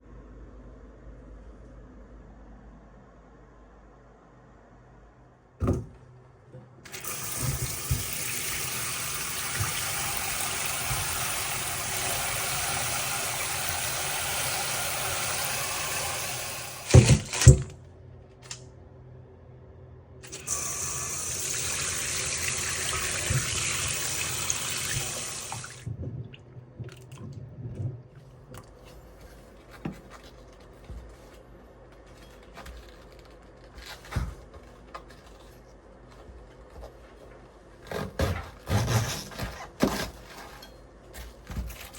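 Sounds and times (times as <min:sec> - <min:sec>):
tap running into sink: 0:06.9 - 0:17.7, 0:20.3 - 0:28.0
handling sounds: 0:25.9 - 0:38.1.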